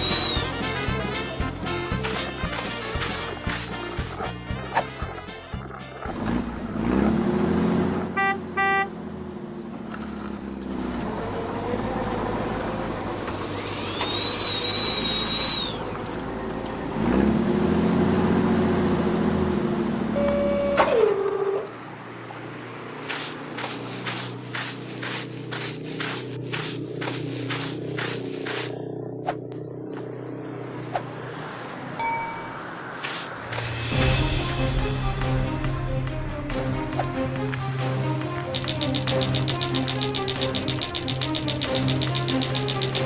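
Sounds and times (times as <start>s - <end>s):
heavy vehicle engine revving: 2.0s - 20.3s, 23.0s - 30.8s
horn beeps: 8.2s - 8.9s, 20.2s - 21.7s.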